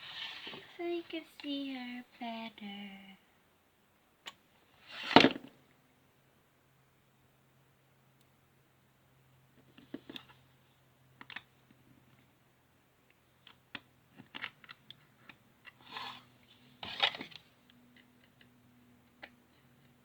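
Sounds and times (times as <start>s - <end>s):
short scrapes or rustles: 0.0s - 0.7s.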